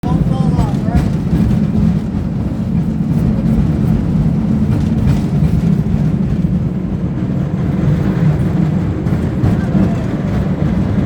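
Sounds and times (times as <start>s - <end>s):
cable car rumbling: 0.0s - 11.0s.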